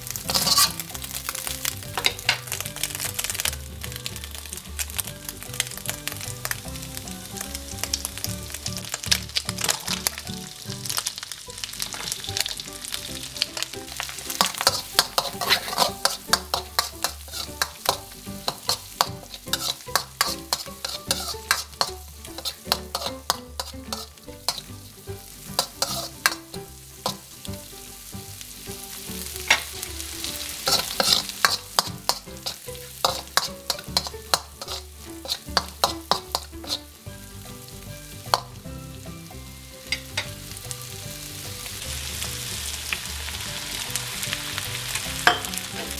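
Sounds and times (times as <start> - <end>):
metal spoon scraping wok: 0.0 - 3.5, 8.6 - 11.1, 11.7 - 12.6, 13.2 - 27.7, 28.7 - 38.7, 39.3 - 40.8, 45.0 - 45.9
food sizzling in oil: 0.0 - 45.9.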